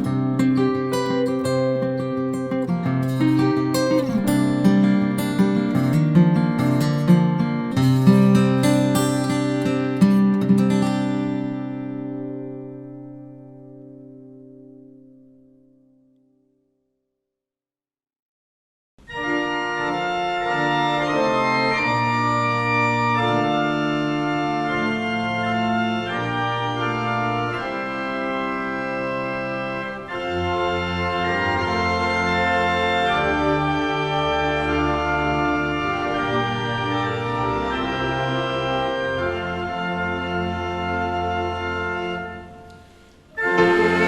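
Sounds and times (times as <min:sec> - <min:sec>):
organ playing sustained chords: 0:19.1 - 0:42.7, 0:43.3 - 0:44.0.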